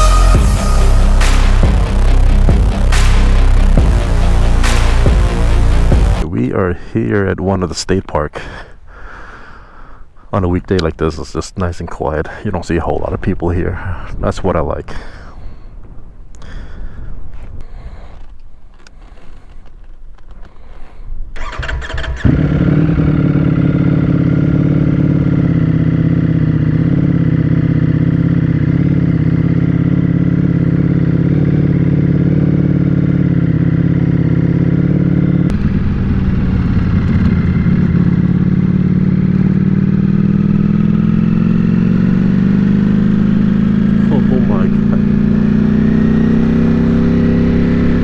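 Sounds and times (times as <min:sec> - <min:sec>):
motorcycle engine idling: 0:21.4 - 0:42.2.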